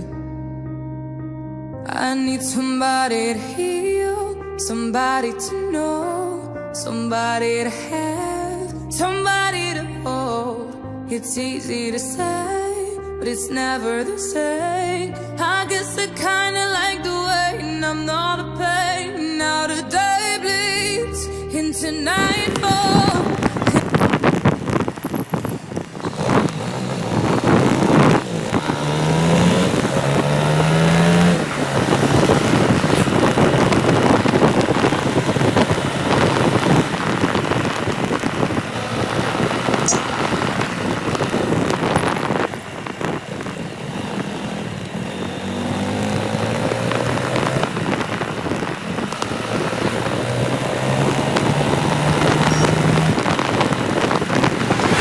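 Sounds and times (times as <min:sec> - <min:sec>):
wind noise on microphone: 0:22.0 - 0:55.0
motorcycle engine: 0:22.2 - 0:55.0.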